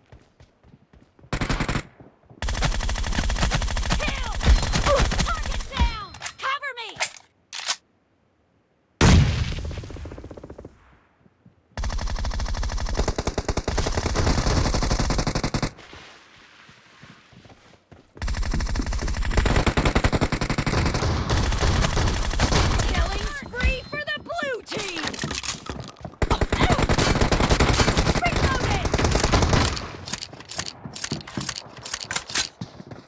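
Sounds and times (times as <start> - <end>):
automatic gunfire bursts: 1.3 - 5.8, 18.2 - 23.4, 26.2 - 32.4
loud gun blast: 9.0 - 10.0.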